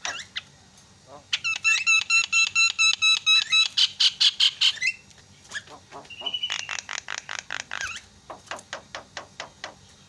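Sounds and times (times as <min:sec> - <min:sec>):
bird harsh chattering: 0:01.2 - 0:08.1
bird whistled note: 0:06.1 - 0:06.7.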